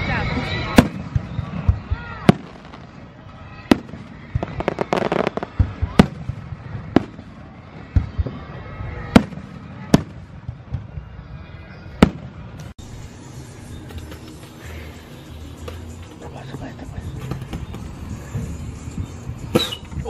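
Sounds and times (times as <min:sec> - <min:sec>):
firework crackles: 0:00.5 - 0:11.2.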